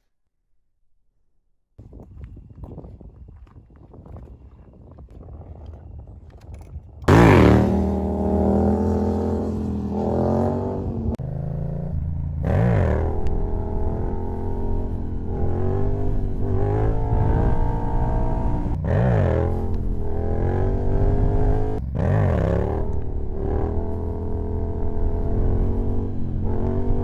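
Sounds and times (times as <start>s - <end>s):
motorcycle engine revving: 5.6s - 27.0s.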